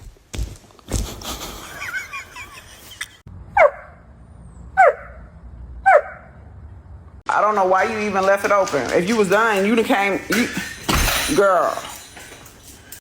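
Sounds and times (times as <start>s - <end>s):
dog barking: 3.6s - 4.0s, 4.8s - 6.4s.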